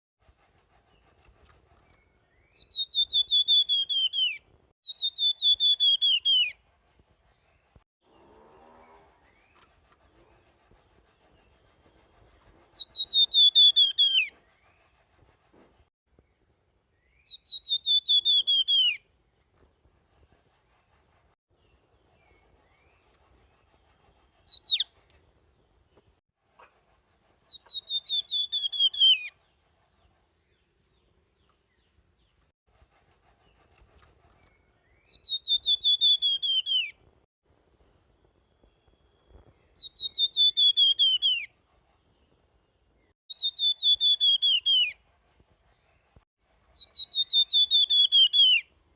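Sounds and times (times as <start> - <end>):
songbird whistled trills: 1.8 - 6.6, 12.7 - 14.9, 17.0 - 19.0, 24.4 - 25.0, 27.5 - 29.5, 34.4 - 37.0, 38.6 - 41.6, 43.3 - 45.0, 46.7 - 48.7.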